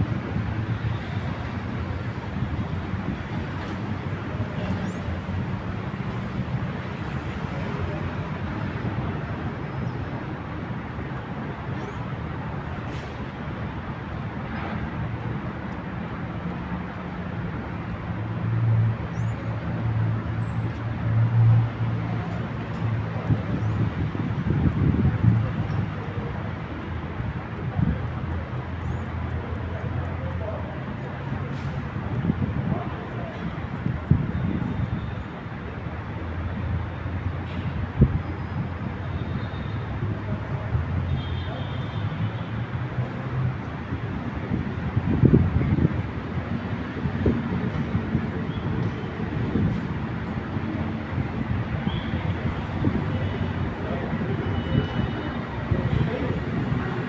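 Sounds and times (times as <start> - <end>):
street traffic noise: 0.0 - 57.0.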